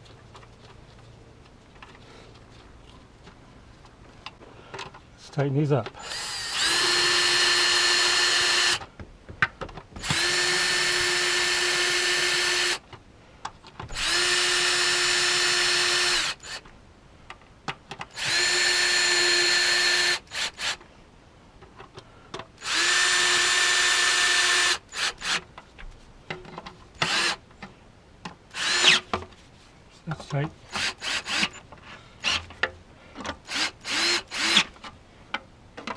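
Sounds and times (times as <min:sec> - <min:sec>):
power drill driver tightening: 0:06.0 - 0:08.8, 0:10.0 - 0:12.8, 0:13.9 - 0:16.6, 0:18.1 - 0:20.8, 0:22.6 - 0:25.4, 0:27.0 - 0:27.4, 0:28.5 - 0:29.1, 0:30.7 - 0:31.6, 0:33.4 - 0:34.8.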